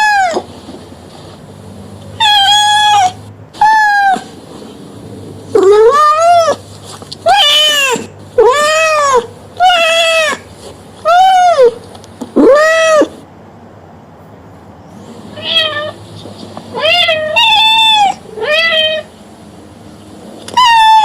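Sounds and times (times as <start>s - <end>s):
cat meowing: 0.0s - 0.4s, 2.2s - 4.3s, 5.6s - 6.6s, 7.2s - 10.4s, 12.4s - 13.1s, 15.3s - 16.0s, 16.7s - 19.1s, 20.5s - 21.0s.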